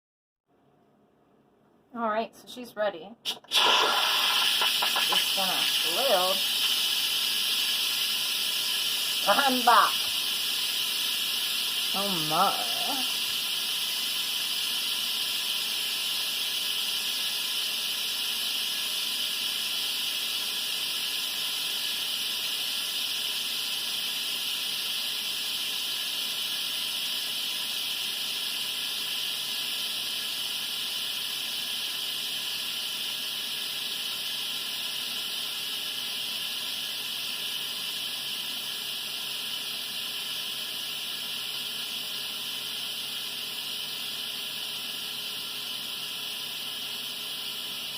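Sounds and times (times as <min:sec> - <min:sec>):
pressure cooker steam hiss: 0:03.2 - 0:47.9.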